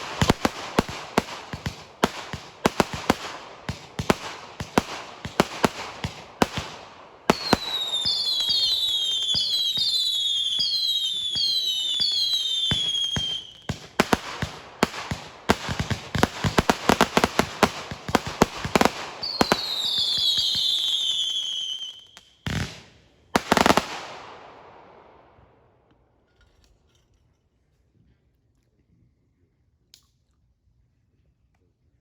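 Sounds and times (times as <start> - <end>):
fireworks bangs and crackles: 0.0 - 25.2.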